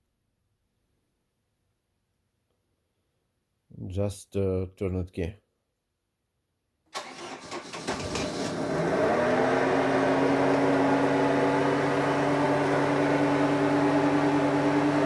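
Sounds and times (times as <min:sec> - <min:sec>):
marine engine starting and idling: 0:07.0 - 0:15.0.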